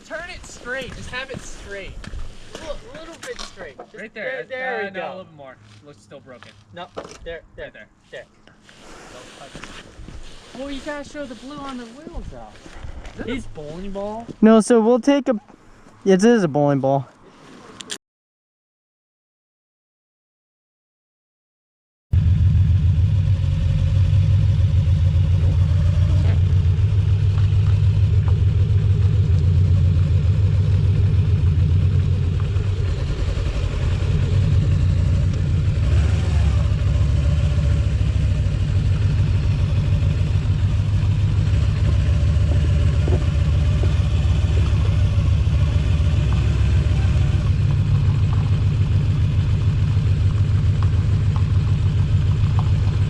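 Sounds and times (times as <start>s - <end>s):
vehicle engine rumbling: 22.2s - 53.0s.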